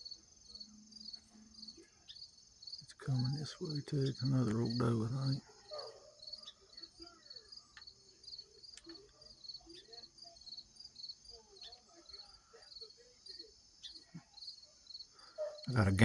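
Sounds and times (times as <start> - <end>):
high insect drone: 0.0 - 8.5
crickets chirping: 0.0 - 16.0.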